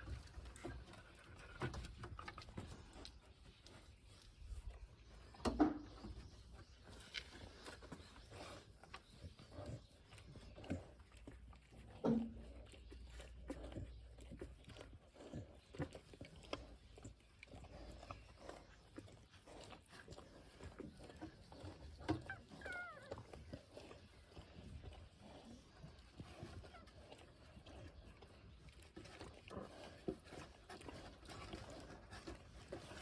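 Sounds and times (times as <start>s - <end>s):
puppies squeaking and whimpering: 22.1s - 23.5s.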